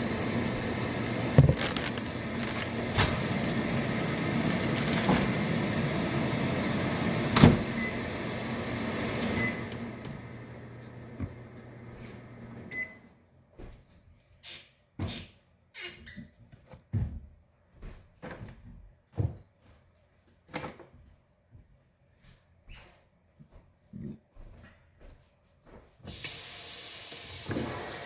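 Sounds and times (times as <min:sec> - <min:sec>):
microwave oven humming: 0:00.0 - 0:13.1.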